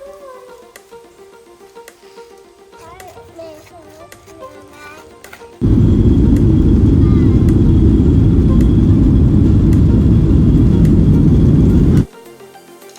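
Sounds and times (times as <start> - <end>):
loud low rumble of noise: 5.6 - 12.1.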